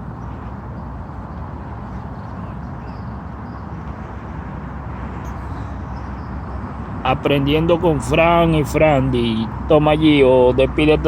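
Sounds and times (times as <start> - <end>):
road traffic rumble: 0.0 - 11.0
wind: 0.0 - 11.0.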